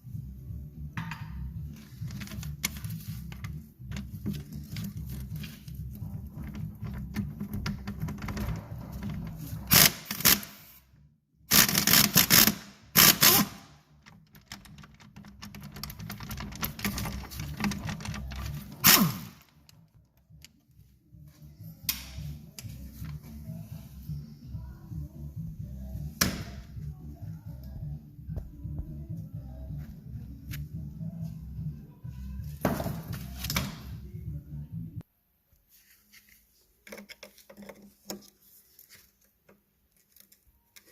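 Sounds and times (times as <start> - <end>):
loud short tool bursts: 11.5 - 13.7, 18.8 - 19.4
rapid small clicks and clatter: 14.0 - 18.8.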